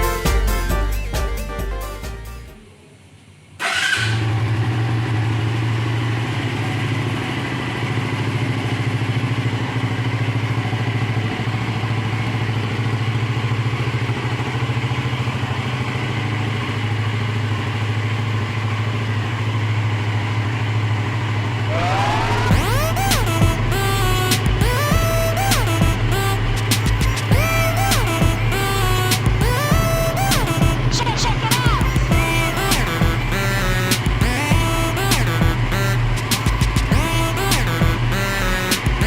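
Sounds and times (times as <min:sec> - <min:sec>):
motorcycle idling: 0:00.0 - 0:39.0.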